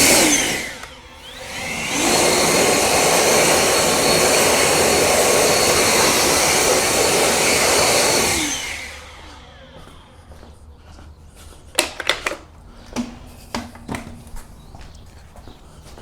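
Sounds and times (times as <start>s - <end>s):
electric fan motor whining: 0.0s - 10.8s.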